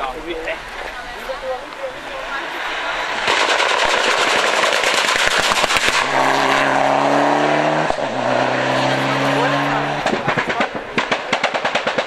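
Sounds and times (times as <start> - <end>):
rally car engine at high revs: 2.4 - 12.0
exhaust crackles and bangs: 3.1 - 12.0.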